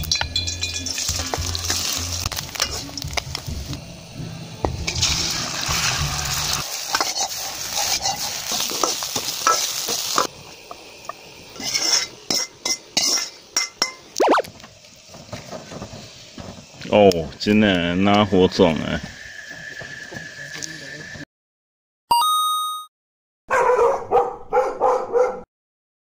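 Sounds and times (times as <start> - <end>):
metal clinking against a wok: 0.0 - 1.9
food sizzling in a wok: 0.0 - 21.2
metal spatula scraping a wok: 0.4 - 3.1, 4.9 - 10.3, 11.5 - 14.0.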